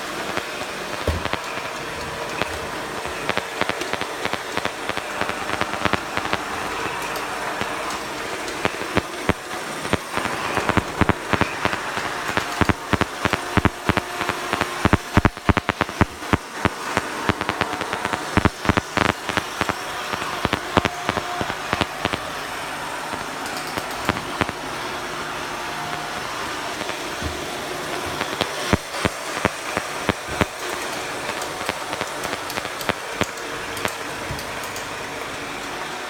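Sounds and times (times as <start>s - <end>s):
robot vacuum motor and brush whir: 0.0s - 14.9s
sharp clicks and knocks: 0.9s - 6.4s.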